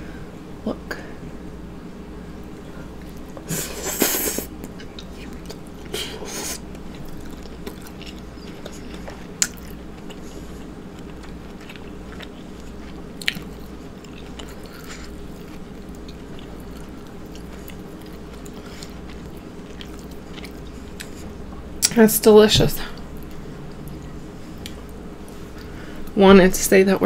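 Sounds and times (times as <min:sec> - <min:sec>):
steady low hum: 0:00.0 - 0:27.0
close chewing: 0:02.9 - 0:21.9.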